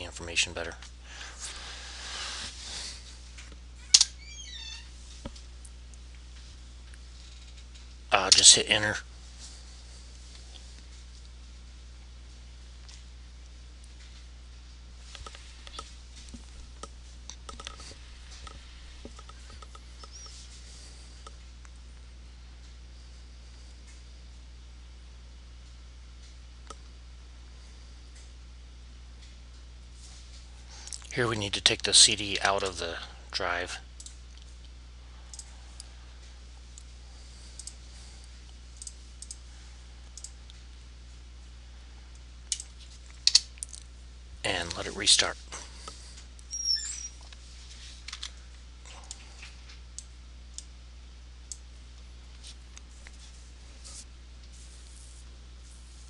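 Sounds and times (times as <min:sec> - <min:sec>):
low electrical hum: 0:00.0 - 0:56.0
computer mouse and key clicks: 0:16.8 - 0:17.8, 0:37.6 - 0:37.8, 0:38.8 - 0:39.4.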